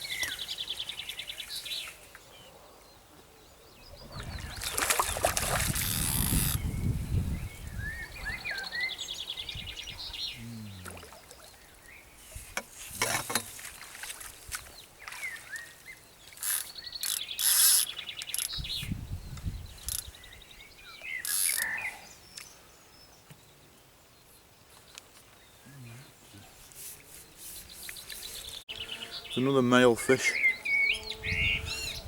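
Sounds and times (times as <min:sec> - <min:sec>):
small birds chirping: 0:00.0 - 0:12.5, 0:13.7 - 0:32.0
bird rattling trill: 0:05.7 - 0:06.6, 0:16.4 - 0:18.8, 0:19.7 - 0:20.1, 0:21.2 - 0:21.7.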